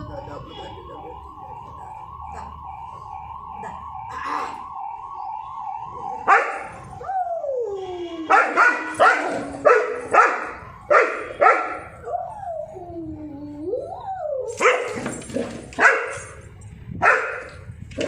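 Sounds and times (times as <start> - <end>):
distant siren: 0.0 - 14.9
dog barking: 6.3 - 6.6, 8.3 - 11.8, 14.6 - 15.0, 15.8 - 16.2, 17.0 - 17.5
dog whining howl: 7.0 - 10.1, 12.0 - 14.6.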